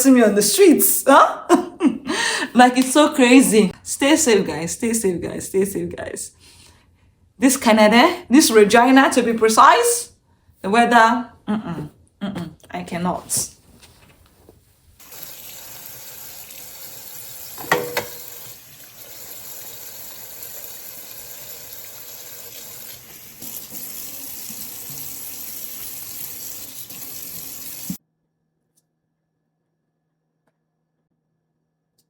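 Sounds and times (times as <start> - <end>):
running water: 15.0 - 28.0.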